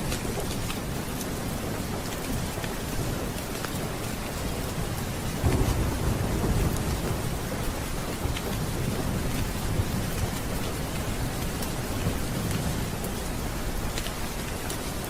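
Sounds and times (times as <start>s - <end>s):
steady rain: 0.0s - 15.0s
low thunder rumble: 4.7s - 14.0s.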